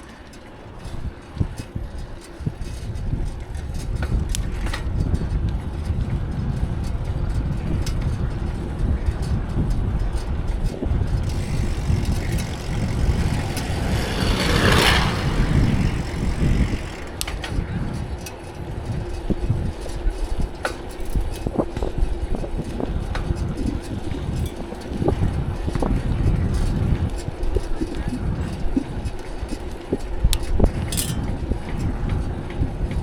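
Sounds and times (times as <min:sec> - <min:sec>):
wind buffeting microphone: 0:00.0 - 0:33.0
road traffic: 0:10.7 - 0:19.0
motor vehicle passing by: 0:11.2 - 0:17.8.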